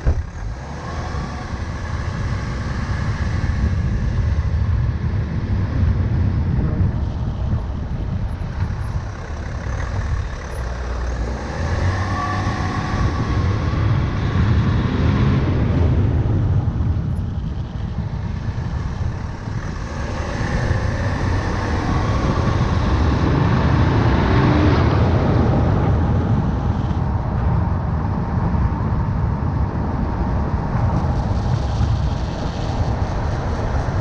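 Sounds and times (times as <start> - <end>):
tyre and road rumble: 0.0 - 34.0
wind noise: 0.0 - 34.0.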